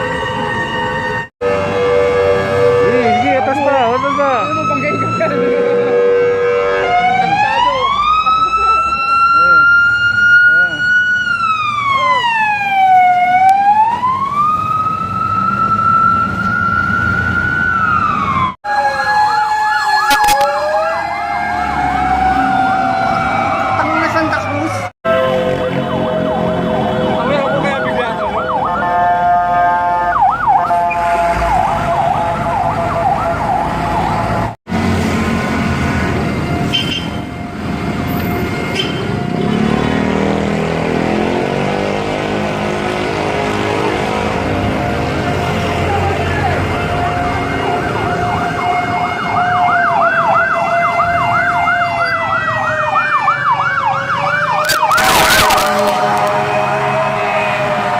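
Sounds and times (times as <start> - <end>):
fire truck siren wailing: 0.0 - 57.9
truck engine accelerating: 37.3 - 48.5
truck engine rumble: 53.4 - 57.9.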